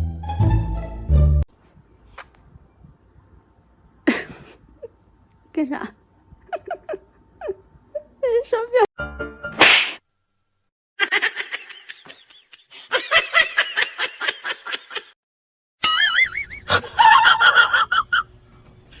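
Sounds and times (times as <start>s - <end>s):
person laughing hard: 11.0s - 15.2s, 16.0s - 18.2s.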